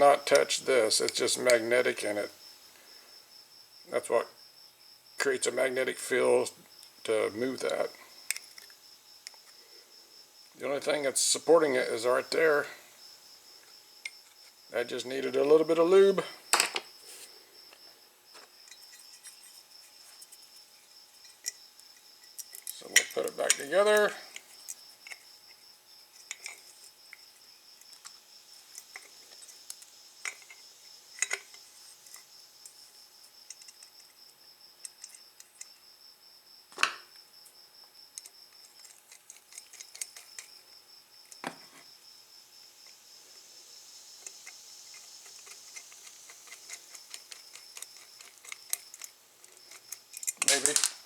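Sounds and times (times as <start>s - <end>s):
small metal clicks and taps: 8.3s - 9.5s, 21.2s - 25.6s, 26.2s - 27.2s, 27.8s - 32.8s, 33.4s - 34.2s, 34.8s - 35.8s, 38.1s - 40.5s, 44.2s - 51.0s.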